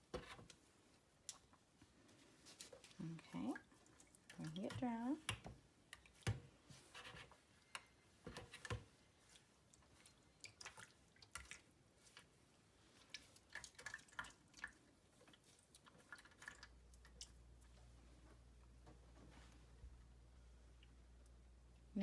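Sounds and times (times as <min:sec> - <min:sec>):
water drips: 0:03.0 - 0:06.4, 0:09.3 - 0:12.3, 0:13.0 - 0:17.8
faint low hum: 0:13.8 - 0:22.0.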